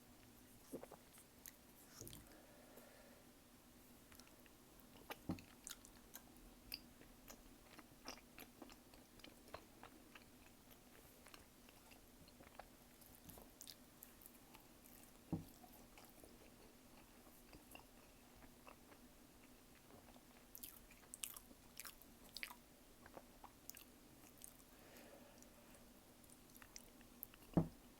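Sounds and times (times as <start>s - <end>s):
faint steady hum: 0.0s - 27.9s
mouth chewing food: 4.1s - 24.7s.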